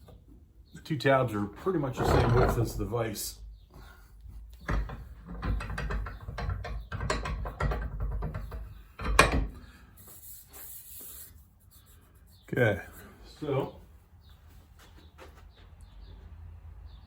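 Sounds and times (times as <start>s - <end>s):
rattling metal clicks and knocks: 4.5s - 9.6s.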